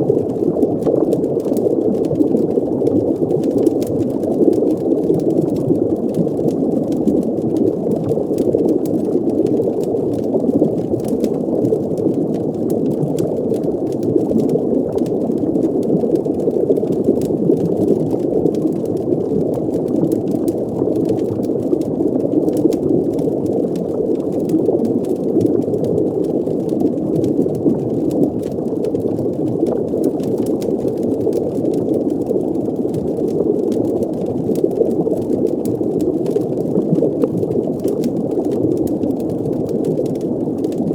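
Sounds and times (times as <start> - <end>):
faint crackles: 0.0 - 40.9
underwater bubbling: 0.0 - 40.9.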